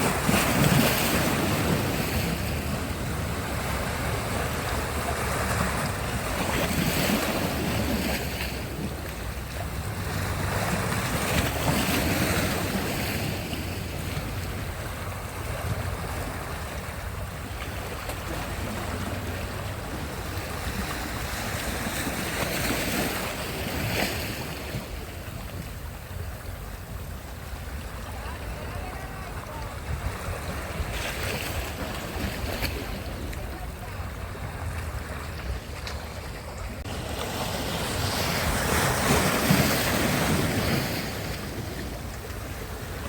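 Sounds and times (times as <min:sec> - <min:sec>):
waves breaking on shore: 0:00.0 - 0:43.0
wind rumble on microphone: 0:00.0 - 0:43.0.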